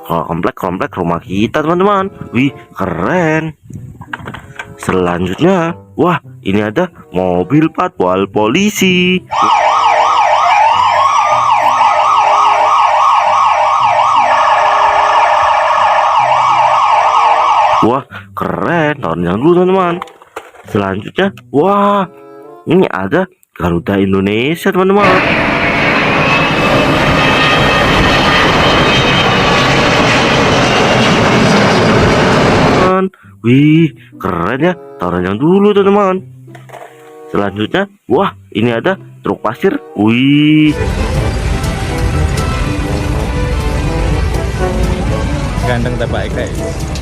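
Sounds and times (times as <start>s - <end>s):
high whine: 9.3s - 17.8s, 25.0s - 32.9s, 40.4s - 47.0s
jet engines roaring: 9.3s - 17.8s, 25.0s - 32.9s, 40.7s - 47.0s
slower rising siren tone: 9.3s - 17.8s, 25.0s - 32.8s, 40.7s - 45.6s
police siren yelping: 9.3s - 18.0s.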